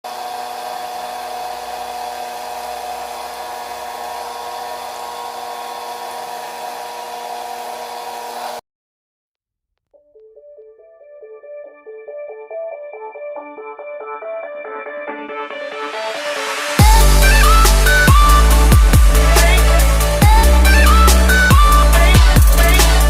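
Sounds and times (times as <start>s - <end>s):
small motor whine and fan hiss: 0.1s - 8.6s
background music: 10.0s - 23.0s.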